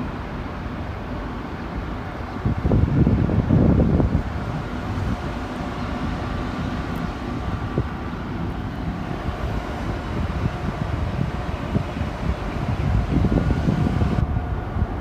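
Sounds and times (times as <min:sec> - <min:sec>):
train rumbling: 0:00.0 - 0:15.0
faint whine tones: 0:04.2 - 0:15.0.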